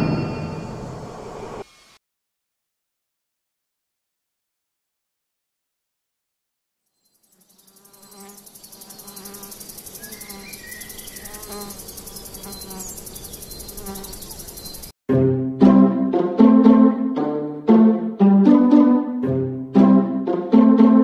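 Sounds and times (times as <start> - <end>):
insects buzzing and trilling: 6.9 - 14.9.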